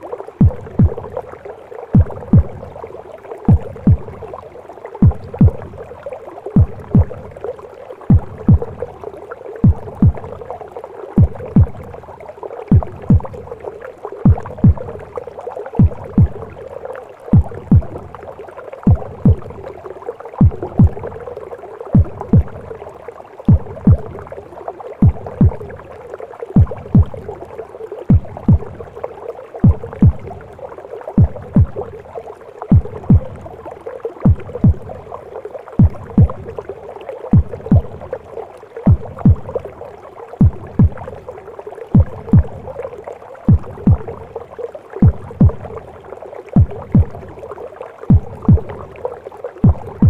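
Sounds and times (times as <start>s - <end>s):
whooshing gurgling womb noise: 0.0s - 50.0s
heartbeat thumps: 0.4s - 1.2s, 1.9s - 2.8s, 3.4s - 4.4s, 5.0s - 5.9s, 6.6s - 7.4s, 8.0s - 9.0s, 9.6s - 10.5s, 11.2s - 12.1s, 12.7s - 13.6s, 14.2s - 15.1s, 15.8s - 16.7s, 17.3s - 18.3s, 18.9s - 19.8s, 20.4s - 22.8s, 23.5s - 24.4s, 25.0s - 25.9s, 26.6s - 27.4s, 28.1s - 29.0s, 29.6s - 30.6s, 31.2s - 32.0s, 32.7s - 33.6s, 34.2s - 35.1s, 35.8s - 36.7s, 37.3s - 38.2s, 38.9s - 39.8s, 40.4s - 41.3s, 41.9s - 42.9s, 43.5s - 44.4s, 45.0s - 45.9s, 46.6s - 47.4s, 48.1s - 49.0s, 49.6s - 50.0s.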